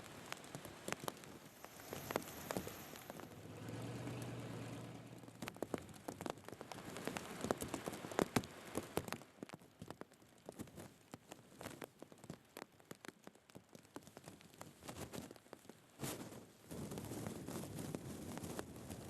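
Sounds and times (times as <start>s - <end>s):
rain drops falling: 0.0s - 19.0s.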